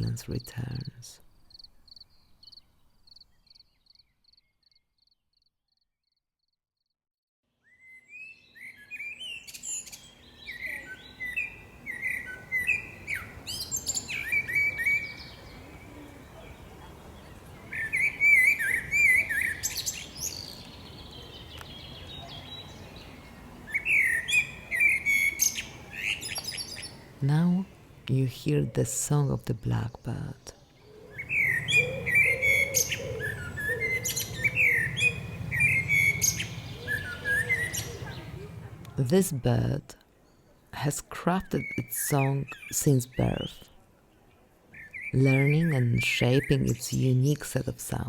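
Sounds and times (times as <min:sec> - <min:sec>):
cricket chirping: 0:00.8 - 0:05.8
blackbird singing: 0:07.6 - 0:28.9, 0:29.5 - 0:40.7, 0:41.3 - 0:43.7, 0:44.7 - 0:48.0
faint background hiss: 0:09.2 - 0:48.0.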